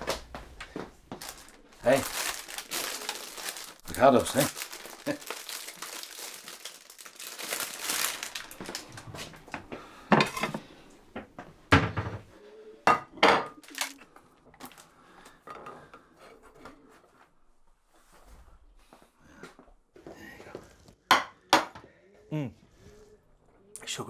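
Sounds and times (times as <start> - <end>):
crockery and cutlery clattering: 10.2 - 10.6.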